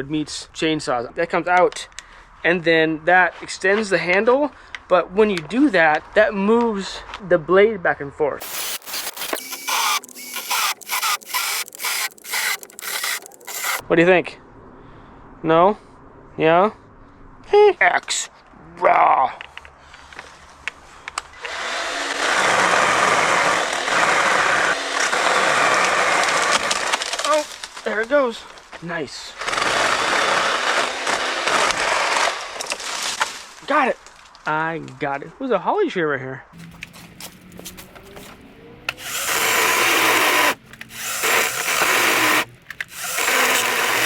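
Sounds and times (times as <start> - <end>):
electric chainsaw cutting wood: 8.4 - 13.8, 21.4 - 27.3, 29.4 - 32.7, 36.6 - 44.0.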